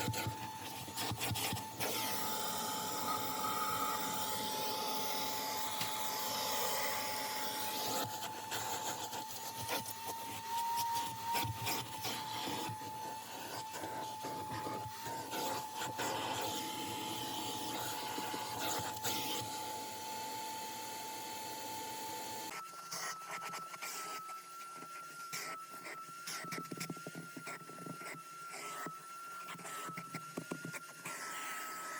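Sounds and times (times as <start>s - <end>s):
vacuum motor whining: 0.0s - 31.9s.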